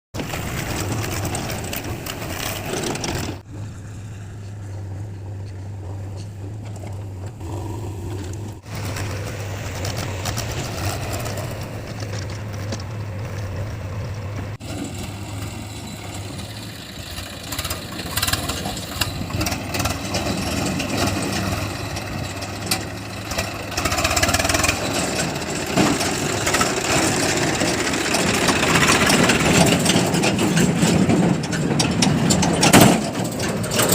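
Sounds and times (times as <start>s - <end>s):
heavy diesel machinery engine: 0.1s - 33.9s.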